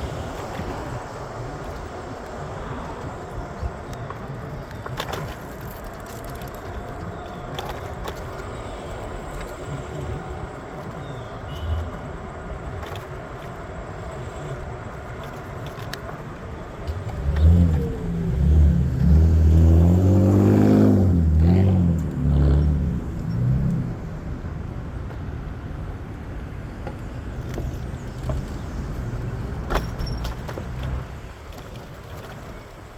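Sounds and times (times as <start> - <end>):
city street traffic: 0.0 - 32.9
vehicle engine accelerating loudly: 16.9 - 25.0.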